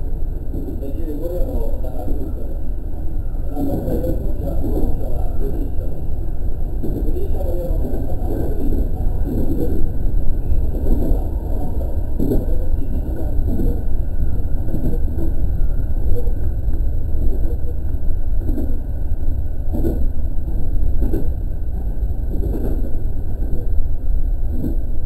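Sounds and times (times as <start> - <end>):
train wheels rumbling on track: 0.0 - 25.0
train thumps: 6.4 - 23.8, 24.4 - 25.0.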